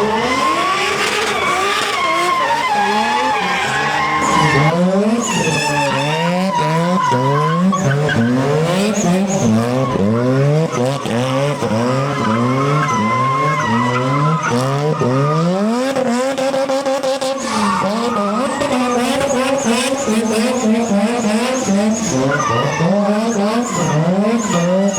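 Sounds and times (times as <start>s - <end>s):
tyre squeal: 0.0s - 15.6s, 17.3s - 24.9s
car engine revving: 0.0s - 24.9s.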